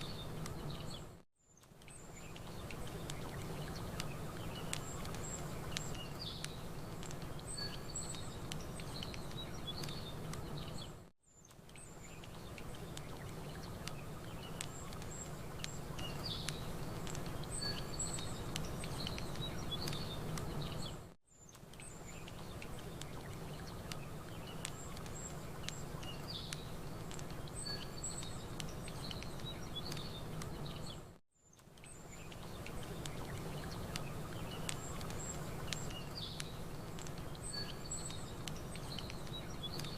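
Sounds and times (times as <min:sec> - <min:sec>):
campfire crackling: 0:00.0 - 0:39.9
small birds chirping: 0:00.0 - 0:39.9.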